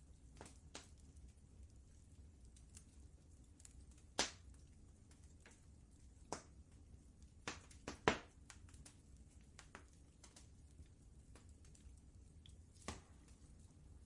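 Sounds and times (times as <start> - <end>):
low steady rumble: 0.0 - 14.0
wood fire crackling: 0.0 - 14.0
sharp fire pops: 3.9 - 4.6, 7.4 - 9.0, 12.7 - 13.4.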